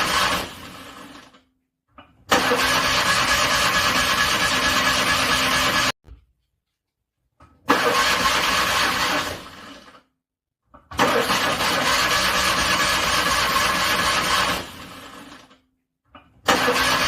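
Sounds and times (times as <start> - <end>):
car engine cranking: 2.3 - 5.9, 7.7 - 9.6, 11.0 - 15.2, 16.5 - 17.0.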